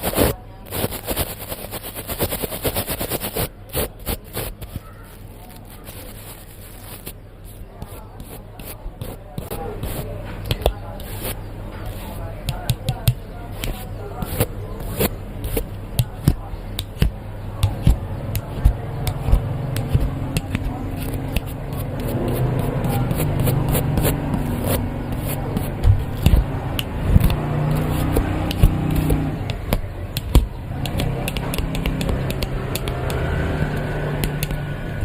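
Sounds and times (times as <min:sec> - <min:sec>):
small objects clicking and scratching: 0:00.0 - 0:34.6.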